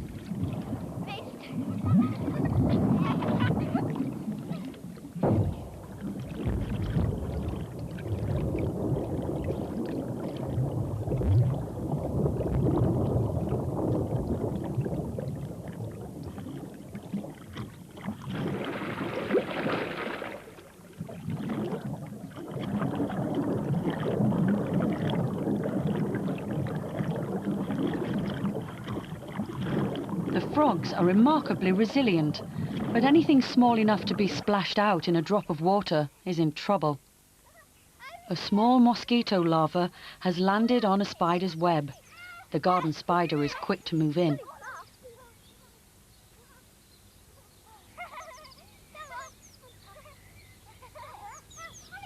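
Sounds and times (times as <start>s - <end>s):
water splashing in a pond: 0.0s - 35.6s.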